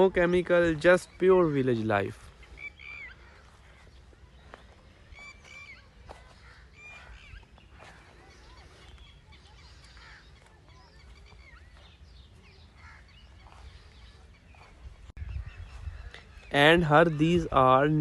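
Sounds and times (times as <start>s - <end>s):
birds chirping and calling: 0.0s - 18.0s.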